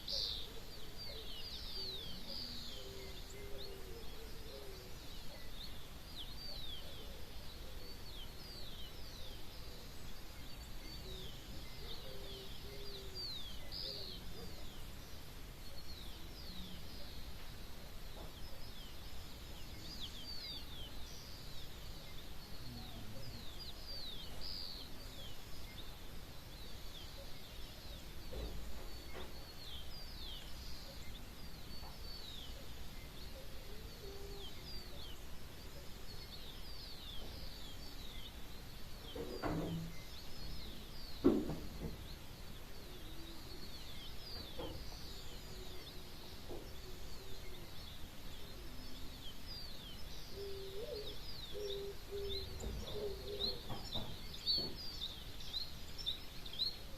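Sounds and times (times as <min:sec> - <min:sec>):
outdoor background hum: 0:00.0 - 0:56.9
small birds chirping: 0:00.0 - 0:56.9
lower bird call: 0:21.7 - 0:56.9.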